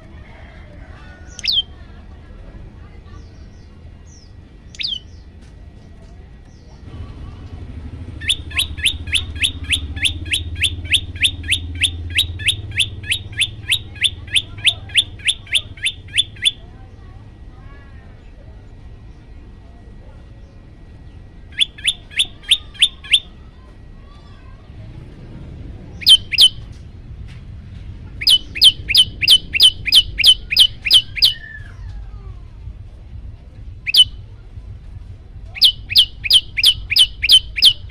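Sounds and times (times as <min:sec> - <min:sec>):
low steady hum: 0:00.0 - 0:37.9
bird calling sharp descending notes: 0:08.1 - 0:16.6, 0:21.5 - 0:23.4, 0:25.9 - 0:26.7, 0:28.2 - 0:32.3, 0:33.9 - 0:34.2, 0:35.5 - 0:37.9.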